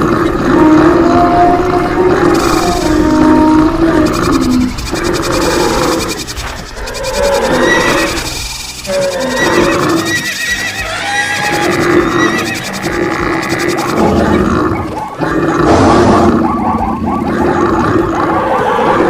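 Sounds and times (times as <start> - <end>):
mix of animal calls: 0.0 - 19.0
horse whinnying: 7.0 - 14.5.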